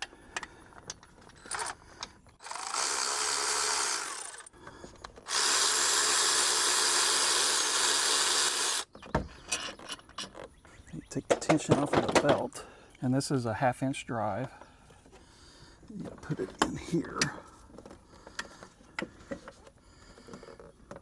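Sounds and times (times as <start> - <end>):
power tool running: 2.4 - 4.6, 5.2 - 8.9.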